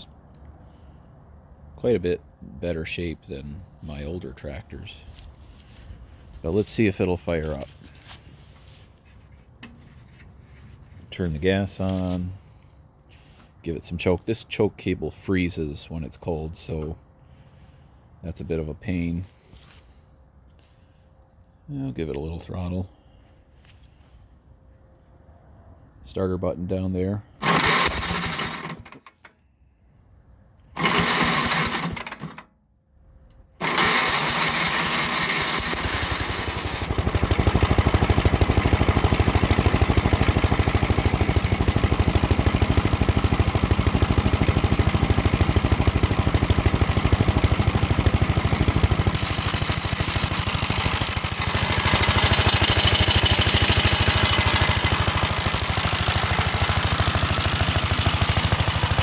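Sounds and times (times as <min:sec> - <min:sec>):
tractor engine running: 0:00.0 - 0:12.6, 0:27.4 - 0:29.3, 0:30.6 - 0:32.5, 0:33.4 - 0:59.0
electric starter cranking: 0:27.4 - 0:29.4, 0:30.6 - 0:32.5, 0:33.5 - 0:59.0.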